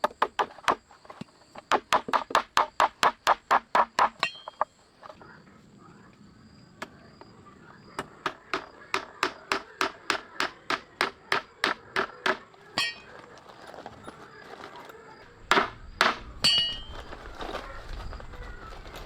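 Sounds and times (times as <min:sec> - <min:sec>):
metallic clink: 0:04.2 - 0:04.6, 0:12.8 - 0:14.3, 0:16.4 - 0:17.2
loud knocks: 0:15.4 - 0:16.8.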